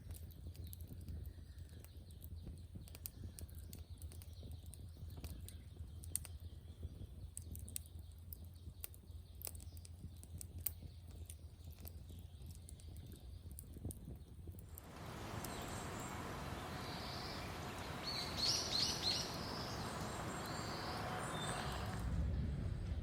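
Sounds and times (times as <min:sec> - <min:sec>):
firewood crackling and popping: 0:00.0 - 0:22.4
low steady rumble: 0:14.6 - 0:23.0.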